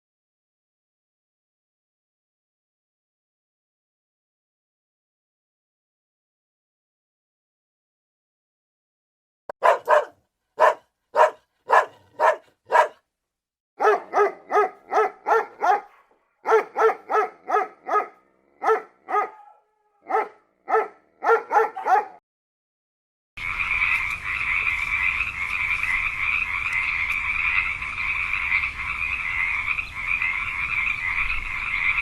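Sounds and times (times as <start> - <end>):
dog barking: 9.5 - 13.0, 13.8 - 22.2.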